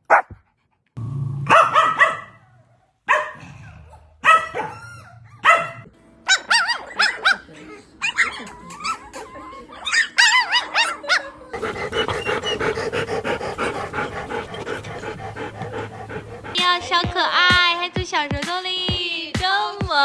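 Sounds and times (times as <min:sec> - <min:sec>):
dog barking and yelping: 0:00.0 - 0:00.4, 0:01.5 - 0:02.5, 0:03.1 - 0:16.6
dog panting: 0:11.1 - 0:17.7.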